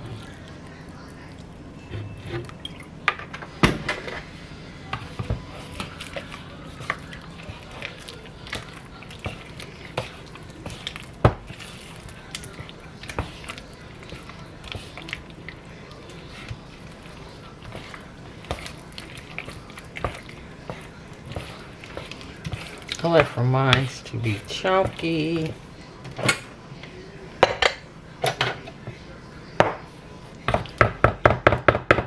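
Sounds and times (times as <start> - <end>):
low steady hum: 0.0 - 30.8
kitchen utensils clinking: 27.4 - 28.8.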